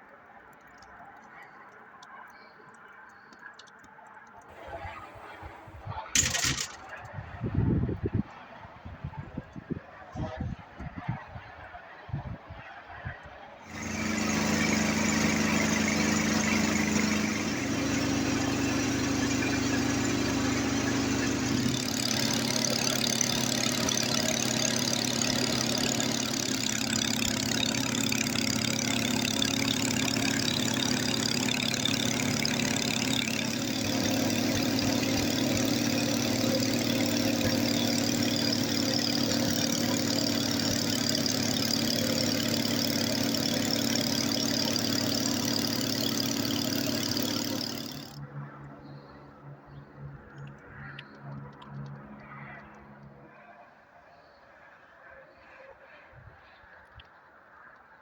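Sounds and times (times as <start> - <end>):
snowblower engine running: 4.5 - 7.1, 13.6 - 53.2.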